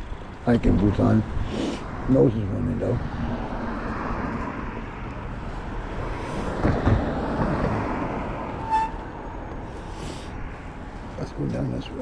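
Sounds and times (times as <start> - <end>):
road traffic noise: 0.0 - 12.0
brief high squeak: 8.6 - 9.2.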